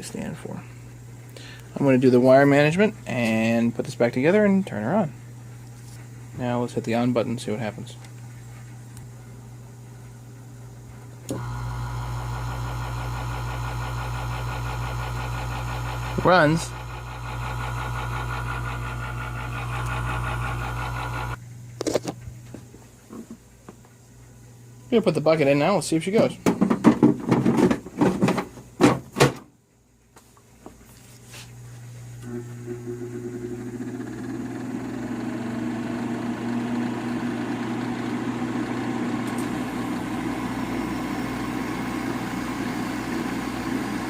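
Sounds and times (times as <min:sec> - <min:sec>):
fan rushing air: 0:00.0 - 0:21.5, 0:37.0 - 0:44.0
dehumidifier humming: 0:00.0 - 0:44.0.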